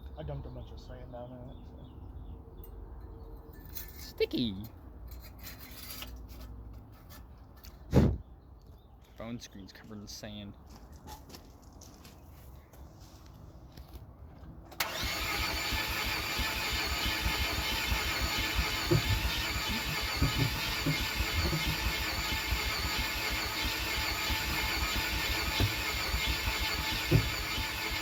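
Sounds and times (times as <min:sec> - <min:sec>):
engine cranking on starter: 0:14.7 - 0:28.0.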